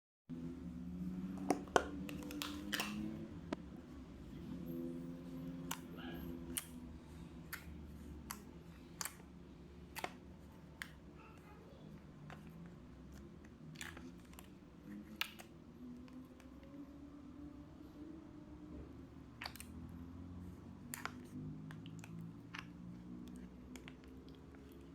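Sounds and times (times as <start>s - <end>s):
slime clicking and popping: 1.4s - 3.1s, 19.4s - 19.8s.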